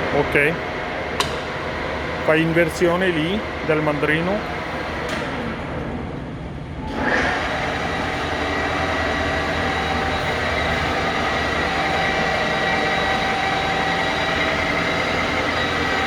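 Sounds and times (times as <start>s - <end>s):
lathe running with gear whine: 0.0s - 5.7s, 6.8s - 16.0s
low hum: 5.9s - 16.0s.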